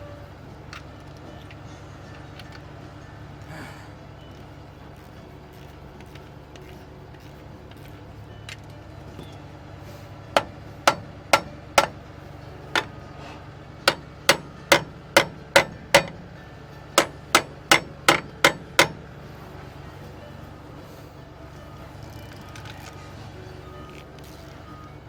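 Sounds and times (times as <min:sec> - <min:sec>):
hand hammer striking: 0:10.4 - 0:12.1, 0:12.7 - 0:13.0, 0:13.8 - 0:19.2.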